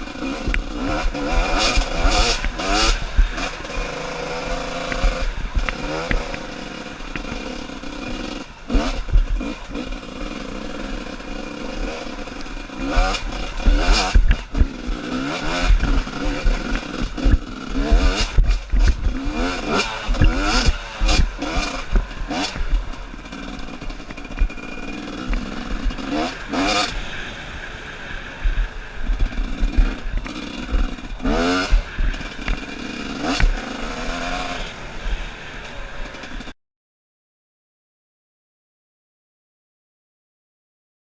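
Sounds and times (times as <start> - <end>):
dirt bike engines revving: 0.0 - 36.5.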